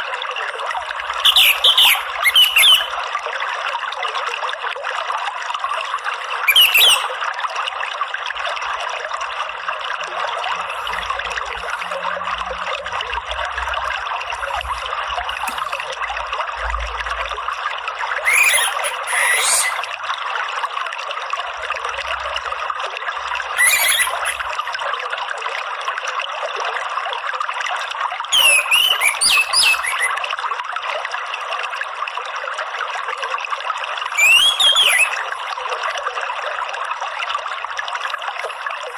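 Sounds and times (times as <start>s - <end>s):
water trickling and splashing: 0.0s - 38.9s
bird whistled calls: 1.2s - 3.0s, 6.5s - 7.2s, 18.2s - 19.9s, 23.6s - 24.5s, 28.3s - 30.2s, 34.2s - 35.3s.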